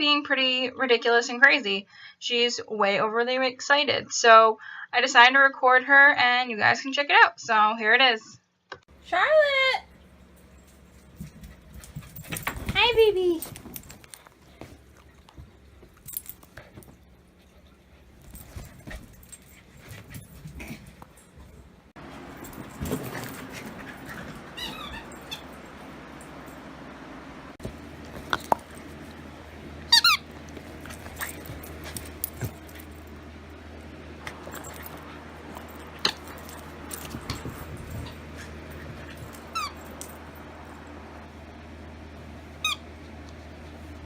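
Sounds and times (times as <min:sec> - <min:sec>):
steady low hum: 0:08.9 - 0:44.0
dog squeaking: 0:24.5 - 0:25.5, 0:29.9 - 0:30.3, 0:39.5 - 0:39.8.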